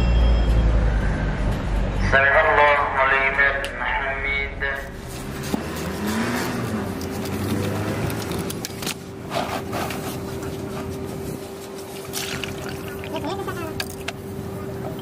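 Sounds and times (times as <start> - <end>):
car engine running: 4.2 - 15.0.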